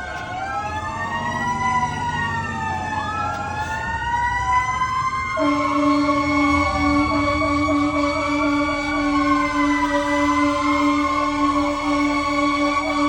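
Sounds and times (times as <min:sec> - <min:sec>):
fire engine sirens wailing: 0:00.0 - 0:13.0
air horn blast: 0:05.4 - 0:13.0.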